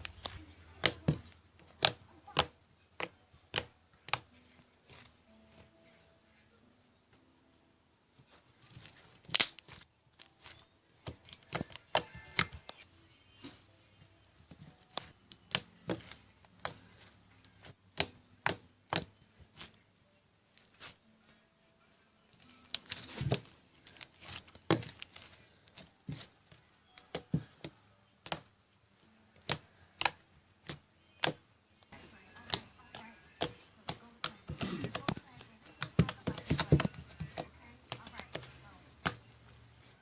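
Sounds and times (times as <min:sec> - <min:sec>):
slime clicking and popping: 0:00.0 - 0:04.3, 0:09.2 - 0:09.8, 0:27.0 - 0:28.5, 0:29.4 - 0:31.4, 0:32.5 - 0:38.4
slime squelching: 0:00.0 - 0:05.7, 0:08.2 - 0:13.7, 0:14.4 - 0:19.8, 0:22.4 - 0:40.0.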